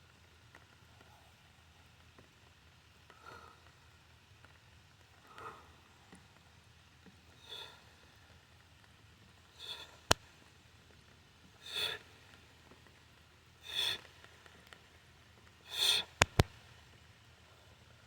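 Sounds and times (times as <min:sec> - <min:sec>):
person exhaling sharply: 0:15.7 - 0:16.4
sharp clicks: 0:15.8 - 0:16.6.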